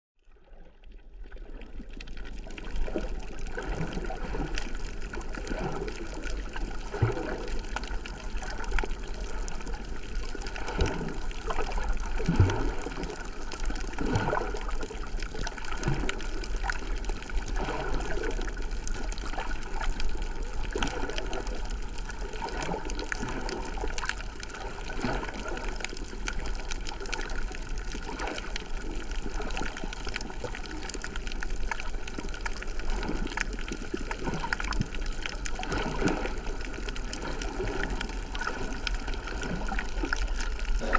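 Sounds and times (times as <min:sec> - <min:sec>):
seawater sloshing and gurgling: 0:00.2 - 0:40.9
bubbly pops: 0:25.2 - 0:40.9.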